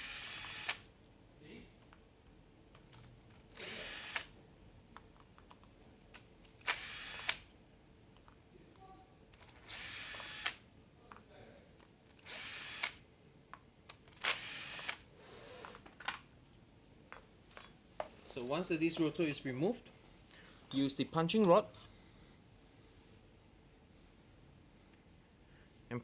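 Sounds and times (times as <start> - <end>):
power screwdriver running: 0.0 - 0.9, 3.5 - 4.4, 6.6 - 7.5, 9.6 - 10.6, 12.2 - 13.0, 14.2 - 15.1.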